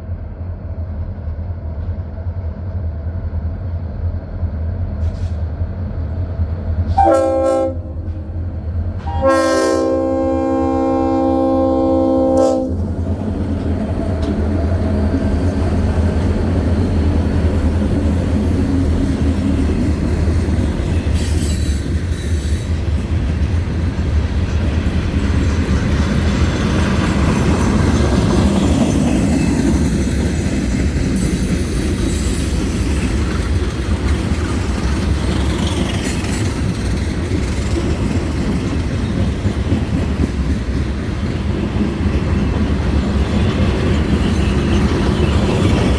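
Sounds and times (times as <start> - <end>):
train engine rumble: 0.0 - 45.9.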